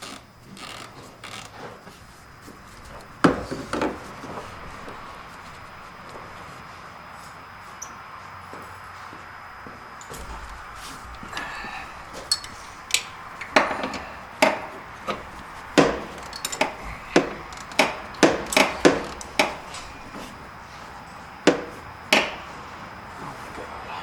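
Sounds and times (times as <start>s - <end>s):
hand tools knocking and clacking: 12.2s - 20.4s, 21.5s - 22.6s.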